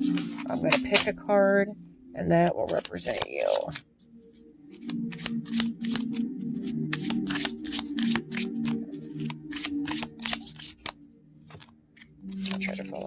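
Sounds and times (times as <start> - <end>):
cards being shuffled: 2.6 - 3.8, 4.7 - 13.0.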